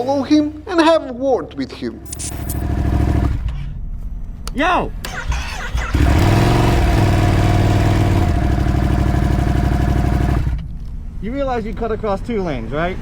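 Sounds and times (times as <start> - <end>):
motorcycle engine at low revs: 2.3 - 3.6, 5.8 - 10.8.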